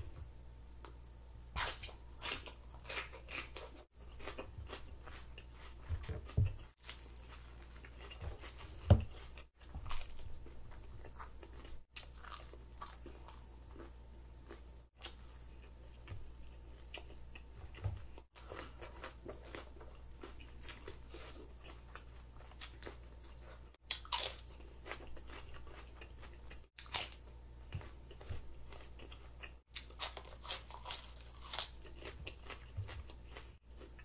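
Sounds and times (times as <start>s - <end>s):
crunchy chewing: 0.8s - 34.0s
crunching bite into apple: 29.0s - 32.7s.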